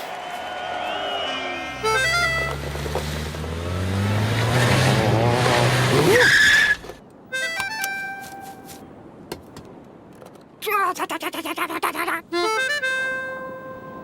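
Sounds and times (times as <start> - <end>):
tyre screech: 0.8 - 7.0
cartoon car engine revving: 1.6 - 6.9.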